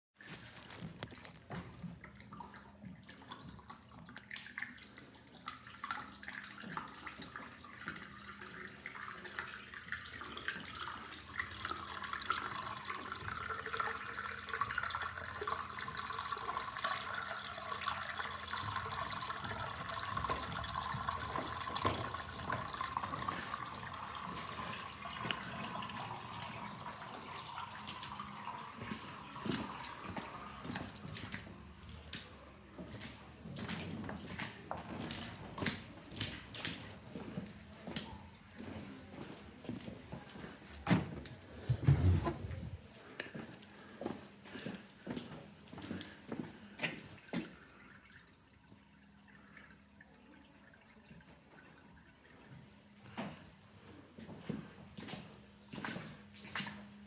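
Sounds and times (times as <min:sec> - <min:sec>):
water running and splashing: 0:02.2 - 0:39.0.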